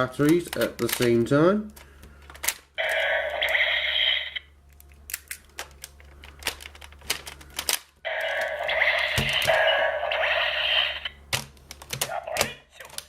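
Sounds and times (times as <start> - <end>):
toy gun electronic sound effects: 2.8 - 4.4, 8.1 - 11.2.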